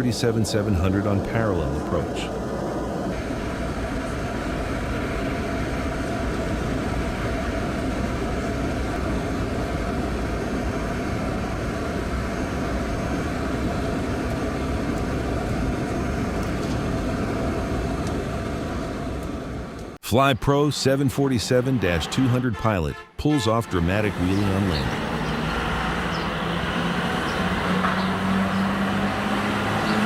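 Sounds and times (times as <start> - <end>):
aircraft engines and airflow drone: 0.0 - 20.0, 20.9 - 30.0.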